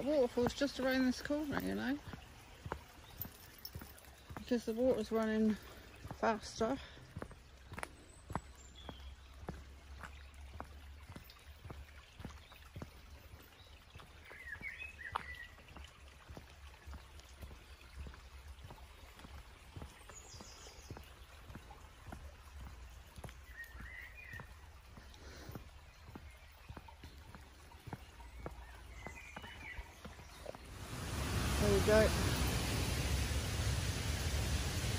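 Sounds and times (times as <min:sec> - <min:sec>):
footsteps on a path: 0:00.0 - 0:32.7
stream running: 0:00.0 - 0:34.9
small bird chirping: 0:25.6 - 0:32.4.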